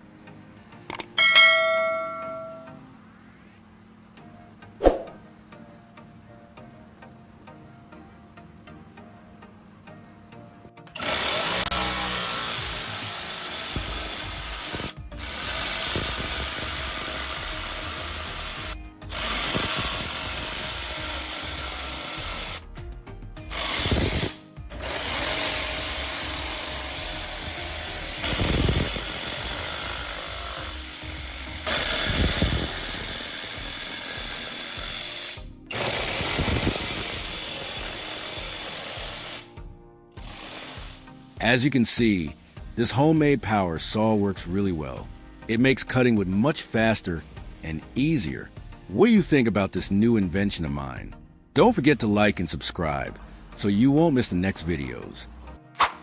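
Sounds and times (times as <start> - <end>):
power saw cutting wood: 10.8 - 55.6.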